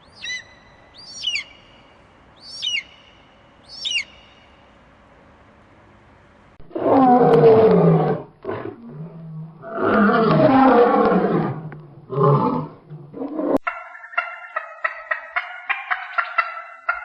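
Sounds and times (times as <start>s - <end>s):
big cat roaring: 6.6s - 13.6s.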